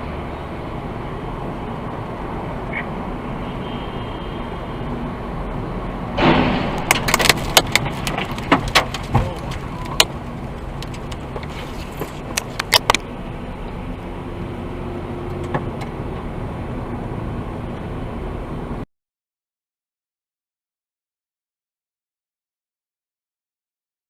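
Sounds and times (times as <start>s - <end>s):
car road rumble: 0.0s - 18.8s
sharp knocks and clattering clicks: 6.2s - 13.1s, 15.3s - 16.3s.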